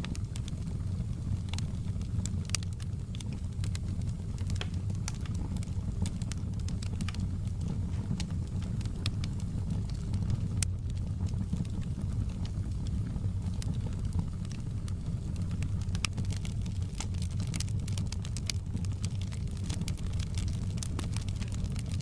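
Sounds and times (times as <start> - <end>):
low rumble of flames: 0.0 - 22.0
wood fire crackling and popping: 0.0 - 22.0.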